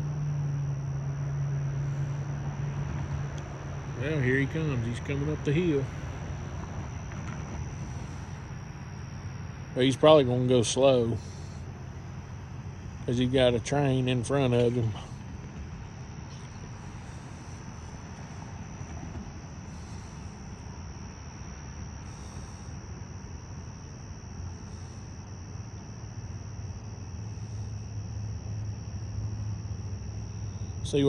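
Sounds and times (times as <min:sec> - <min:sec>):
diesel locomotive rumble: 0:00.0 - 0:23.4
crickets trilling: 0:00.0 - 0:31.0.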